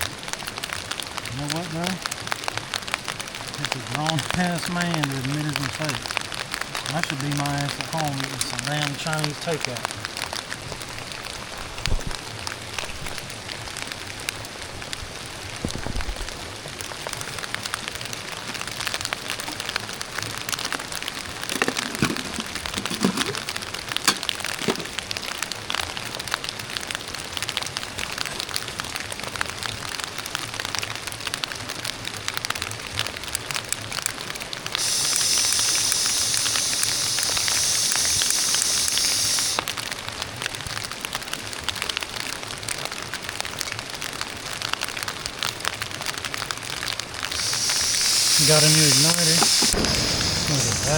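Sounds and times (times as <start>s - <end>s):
rain falling: 0.0s - 50.9s
loud steady hiss: 3.6s - 9.9s, 21.2s - 25.0s, 34.7s - 39.7s, 47.2s - 50.9s.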